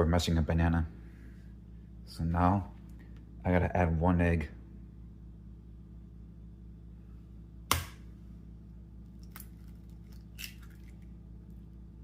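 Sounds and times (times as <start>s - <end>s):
egg cracking on rim: 9.1s - 11.1s.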